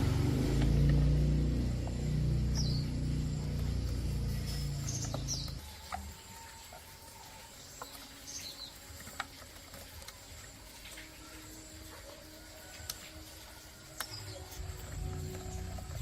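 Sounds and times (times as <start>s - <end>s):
small petrol engine running: 0.0s - 6.2s, 14.1s - 16.0s.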